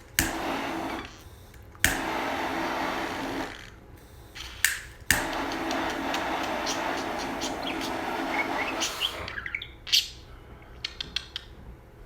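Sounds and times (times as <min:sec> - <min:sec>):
torch lighter clicking: 0:00.0 - 0:03.6, 0:04.4 - 0:09.0
torch flame hissing: 0:00.0 - 0:09.6.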